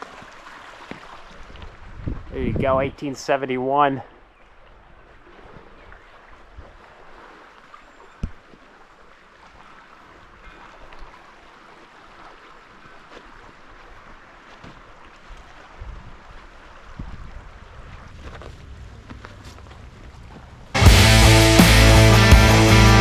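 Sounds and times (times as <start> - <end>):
wind rumble on microphone: 1.4 - 3.0, 15.7 - 20.7.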